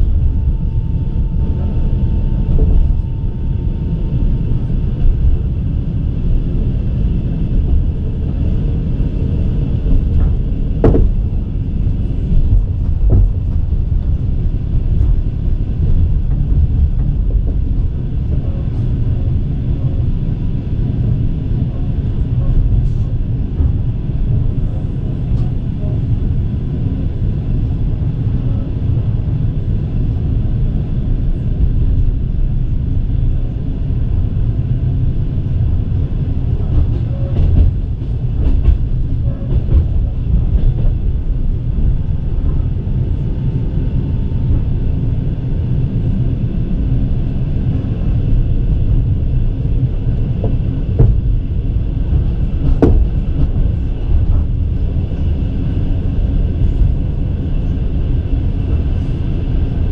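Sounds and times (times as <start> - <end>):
train wheels rumbling on rails: 0.0 - 59.9
sharp knocks: 10.2 - 11.3.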